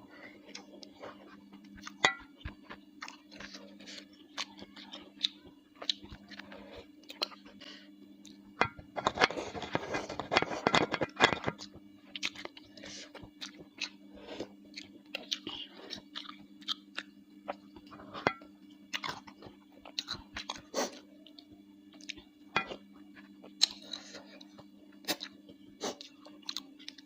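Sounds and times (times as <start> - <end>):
close chewing with wet mouth clicks: 14.7 - 17.1.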